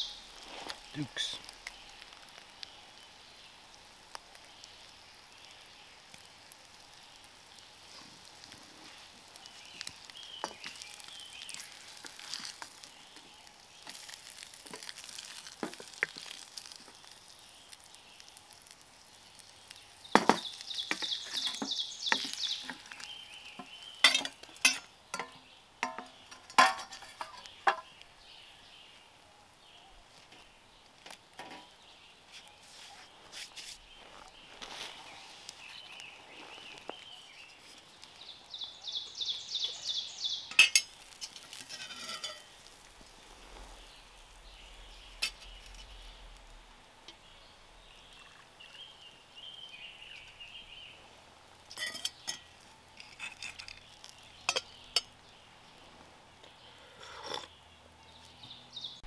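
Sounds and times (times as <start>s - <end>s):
food sizzling in a pan: 0.0s - 28.6s, 31.0s - 55.2s
cooking utensils clinking and scraping: 24.0s - 27.9s, 40.5s - 42.5s, 51.7s - 55.1s, 57.0s - 57.5s.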